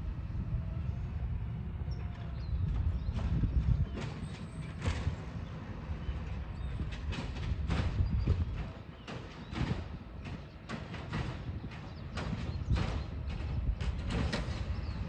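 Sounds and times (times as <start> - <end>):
garbage truck engine rumble: 0.0 - 15.0
metal clanks and knocks: 3.0 - 15.0.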